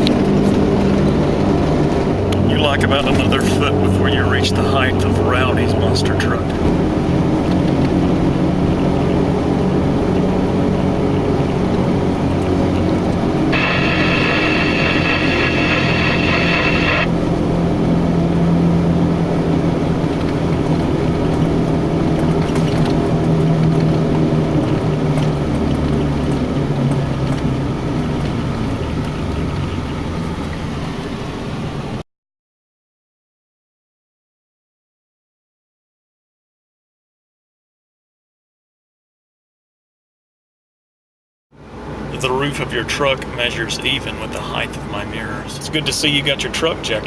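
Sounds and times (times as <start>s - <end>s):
truck engine running: 0.0s - 31.8s
steady high tone: 13.5s - 17.1s.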